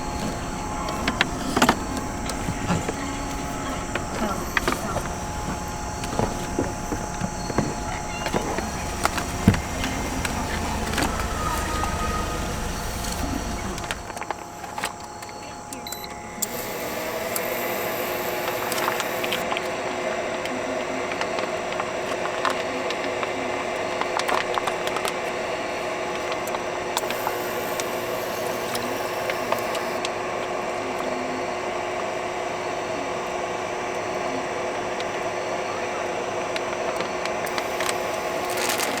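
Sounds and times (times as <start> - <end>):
cooktop hum: 0.0 - 19.4.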